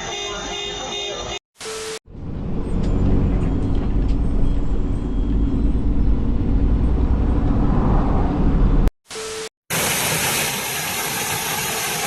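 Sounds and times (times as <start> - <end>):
vehicle engine and road rumble: 2.1 - 8.9.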